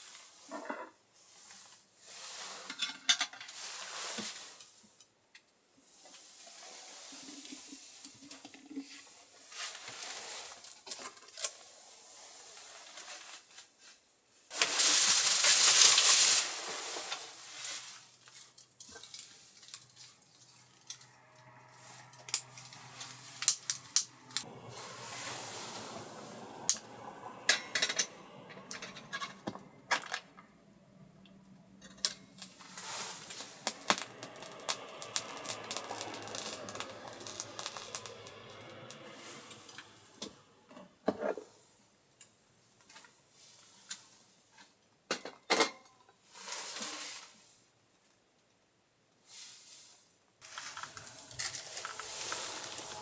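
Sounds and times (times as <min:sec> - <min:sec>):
loud rushing hiss: 0:21.6 - 0:40.7, 0:50.4 - 0:53.0.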